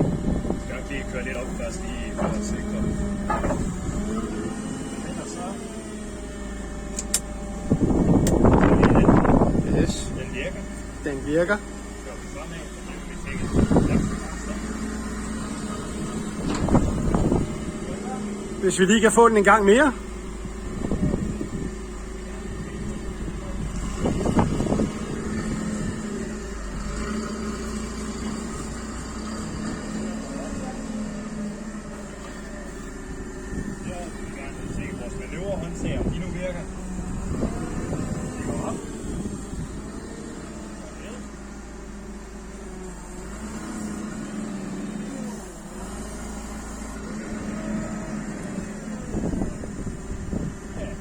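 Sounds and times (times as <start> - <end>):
forklift engine humming: 0.0 - 51.0
hydraulic lift whine: 0.0 - 51.0
rattling clatter: 0.9 - 4.5.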